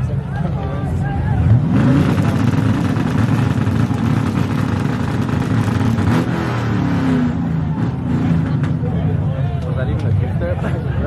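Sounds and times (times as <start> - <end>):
car engine revving high: 1.4 - 8.8.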